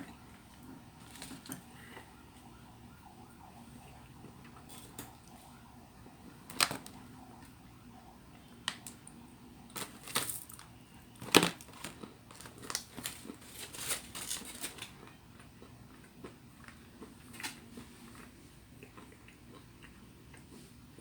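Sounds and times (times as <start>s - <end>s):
utensils and dishes clicking: 9.8s - 15.0s.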